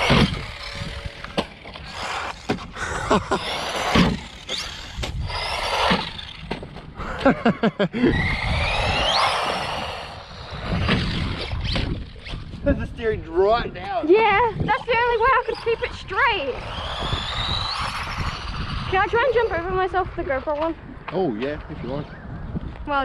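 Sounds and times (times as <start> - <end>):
sharp knocks from landings: 0.0 - 2.8, 3.8 - 5.2, 5.8 - 7.3, 10.6 - 12.6
electric motor whine: 0.0 - 6.8, 8.0 - 12.6, 14.6 - 20.6
rc car tyres scraping and rattling: 0.0 - 7.4, 8.1 - 12.8, 14.0 - 21.6.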